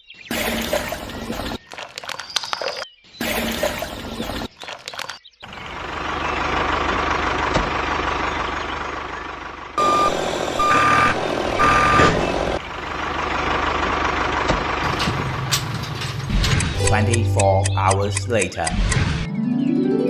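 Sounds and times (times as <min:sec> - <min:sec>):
vehicle engine running: 0:05.4 - 0:19.2
reversing alarm beeps: 0:09.8 - 0:12.2.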